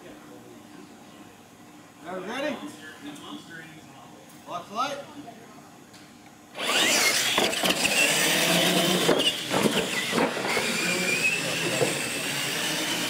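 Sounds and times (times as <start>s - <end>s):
rc truck motor and gear whine: 6.5s - 13.0s.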